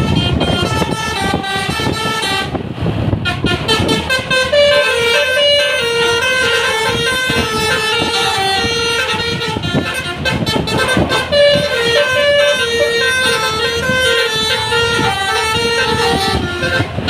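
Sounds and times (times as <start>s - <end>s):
musical bus air horn: 0.0s - 17.0s
vehicle and road noise: 0.0s - 17.0s.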